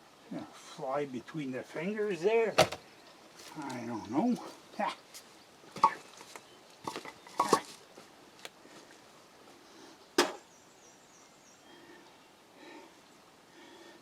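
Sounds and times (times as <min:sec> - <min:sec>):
firewood knocking together: 0:02.6 - 0:02.8.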